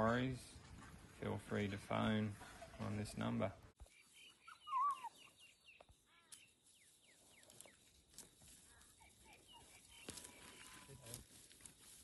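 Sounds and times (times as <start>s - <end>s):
faint birds chirping: 1.9s - 11.1s.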